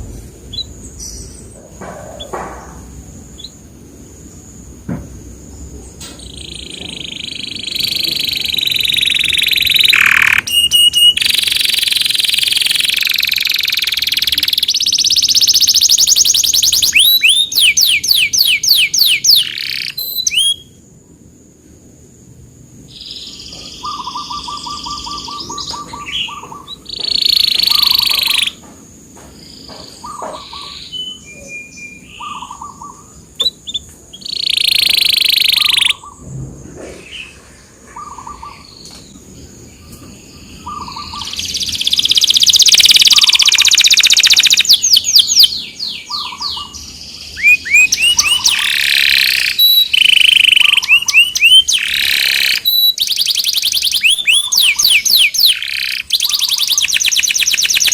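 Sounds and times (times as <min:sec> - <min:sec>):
canary singing: 0:00.0 - 0:04.3, 0:06.1 - 0:20.8, 0:22.9 - 0:28.7, 0:29.4 - 0:36.2, 0:37.1 - 0:57.9.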